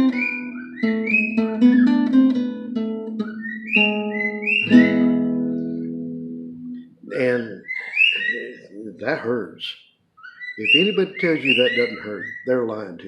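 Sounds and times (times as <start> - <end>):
bird whistling: 0.0 - 2.5, 3.1 - 5.3, 7.6 - 8.7, 9.6 - 12.6
acoustic guitar picking melody: 0.0 - 7.2.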